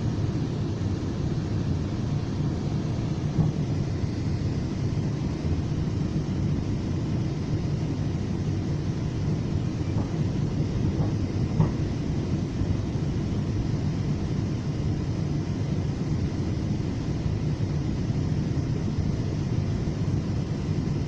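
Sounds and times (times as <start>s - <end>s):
train rumbling from inside: 2.6s - 14.4s.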